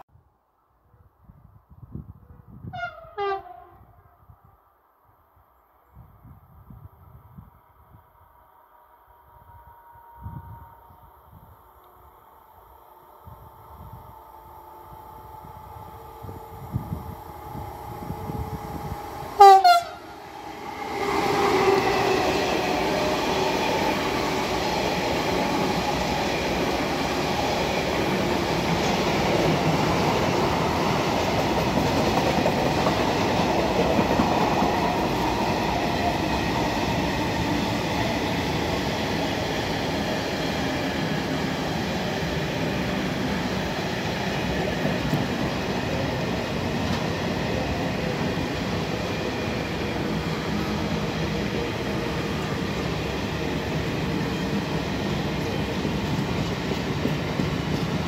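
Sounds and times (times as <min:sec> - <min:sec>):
train horn blast: 0:02.7 - 0:04.1, 0:08.6 - 0:11.5, 0:18.0 - 0:20.2
train wheels on rails: 0:13.6 - 0:58.0.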